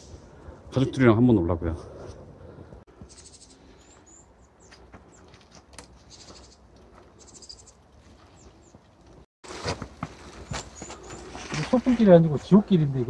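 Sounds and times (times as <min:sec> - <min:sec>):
buzzy bird trills: 0:03.1 - 0:04.6, 0:06.0 - 0:07.8.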